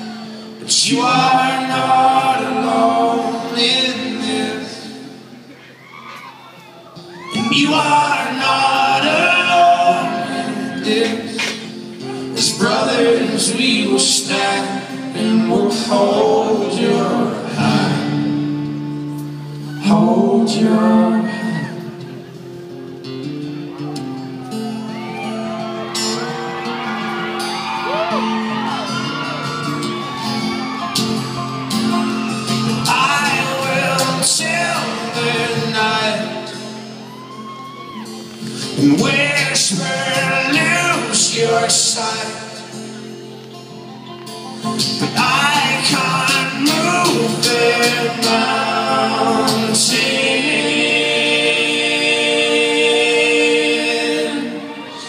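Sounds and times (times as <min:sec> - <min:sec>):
male voices singing in harmony: 0:00.0 - 0:05.4, 0:07.2 - 0:18.7, 0:19.5 - 0:22.2, 0:32.2 - 0:37.1, 0:38.5 - 0:42.8, 0:44.9 - 0:55.0
live band sustained chords: 0:00.0 - 0:55.0
audience whooping and shouting: 0:05.6 - 0:09.4, 0:23.7 - 0:35.0, 0:36.5 - 0:38.5, 0:54.5 - 0:55.0.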